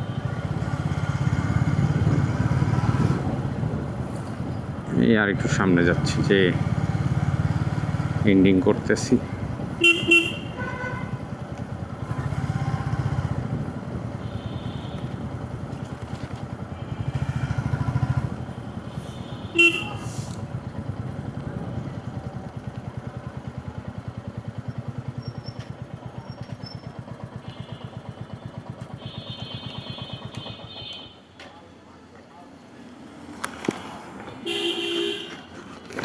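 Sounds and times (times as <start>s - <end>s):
motorcycle engine running: 0.0s - 31.3s, 32.9s - 36.0s
vehicle horn beep: 9.4s - 11.4s, 13.4s - 15.6s, 16.7s - 17.4s, 18.9s - 20.4s, 27.4s - 31.3s, 34.4s - 35.5s.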